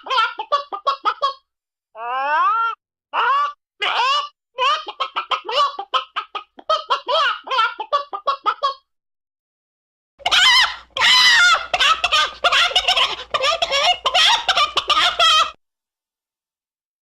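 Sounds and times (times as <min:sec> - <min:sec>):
chicken clucking and squawking: 0:00.0 - 0:01.4, 0:02.6 - 0:08.9, 0:10.2 - 0:15.6.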